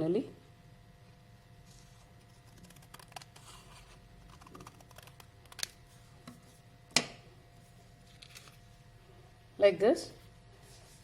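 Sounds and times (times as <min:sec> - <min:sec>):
paper rustling: 0:08.0 - 0:08.6.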